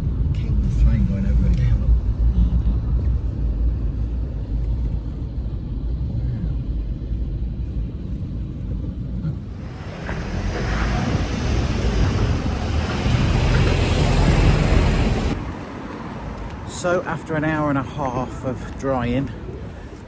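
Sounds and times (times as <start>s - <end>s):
train rumbling over bridge: 7.9s - 16.6s.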